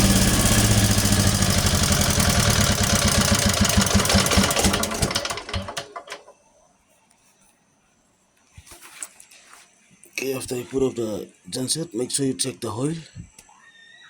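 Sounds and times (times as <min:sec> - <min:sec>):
generator engine shutting off: 0:00.0 - 0:06.3.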